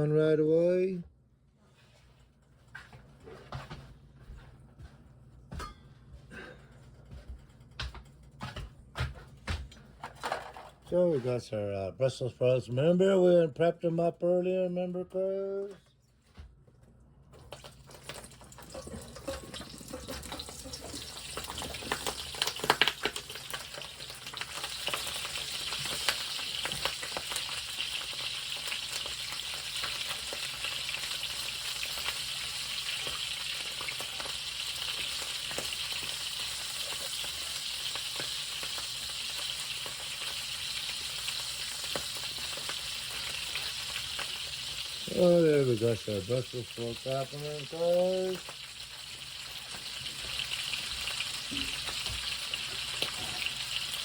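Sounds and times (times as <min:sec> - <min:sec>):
sharp crackles and clatters: 0:17.4 - 0:45.1
brussels sprouts sizzling in a pan: 0:18.0 - 0:54.0.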